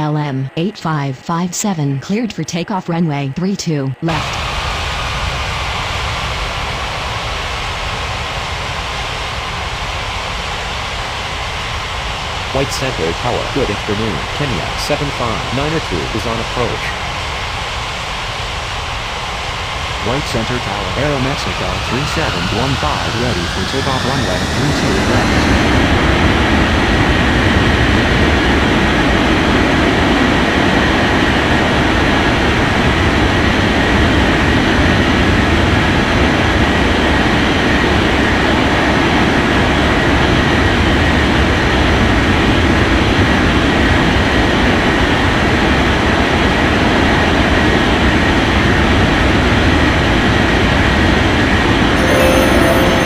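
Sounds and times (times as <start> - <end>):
jet engines at takeoff power: 4.0 - 52.0
faint high whine: 12.5 - 18.4, 19.0 - 27.3, 52.0 - 53.0.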